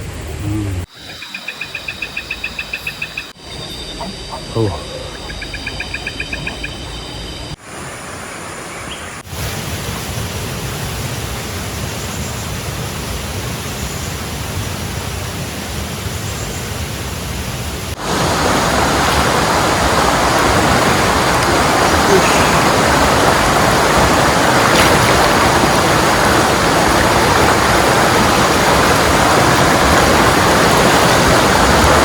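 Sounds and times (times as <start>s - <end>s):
fast rhythmic chirping: 1.0s - 7.3s
rushing river water: 7.6s - 11.8s, 17.0s - 32.0s
heavy rain: 9.2s - 32.0s.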